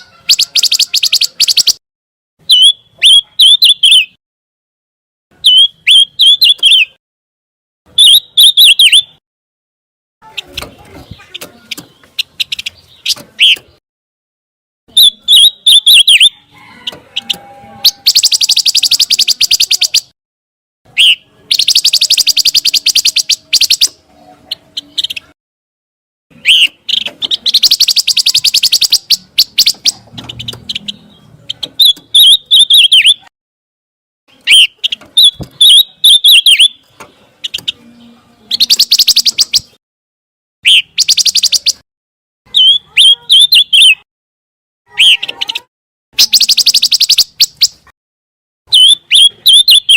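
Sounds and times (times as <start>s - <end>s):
bird song with buzzy trills: 0.0s - 1.8s, 2.4s - 4.2s, 5.4s - 7.0s, 7.9s - 9.2s, 10.2s - 13.8s, 14.9s - 20.1s, 20.9s - 25.4s, 26.3s - 33.3s, 34.3s - 39.8s, 40.6s - 41.8s, 42.5s - 44.0s, 44.9s - 47.9s, 48.7s - 49.9s.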